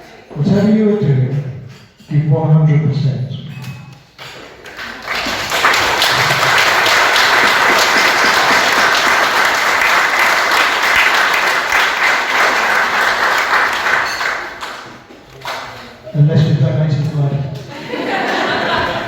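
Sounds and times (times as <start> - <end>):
crowd applauding: 4.6 - 16.0.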